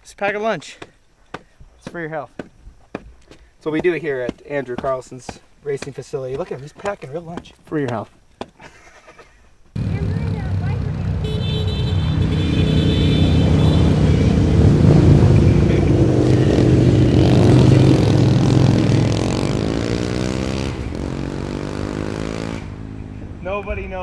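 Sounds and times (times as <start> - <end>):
motorcycle engines running: 9.8 - 24.0.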